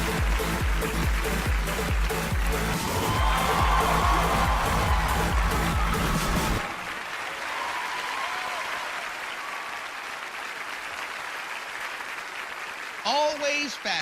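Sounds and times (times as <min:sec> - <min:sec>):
music track with a beat: 0:00.0 - 0:06.6
studio audience applauding: 0:00.0 - 0:14.0.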